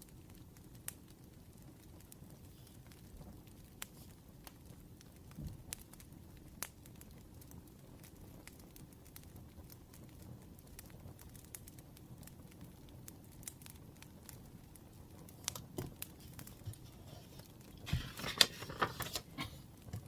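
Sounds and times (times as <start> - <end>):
wood fire crackling: 0.0 - 20.0
paper rustling and crinkling: 15.4 - 20.0.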